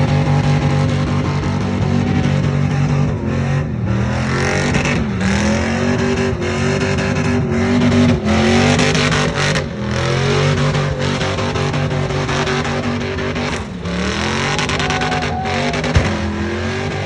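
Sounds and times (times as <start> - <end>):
truck engine at high revs: 0.0 - 17.0
spinning tyres hissing: 10.6 - 17.0.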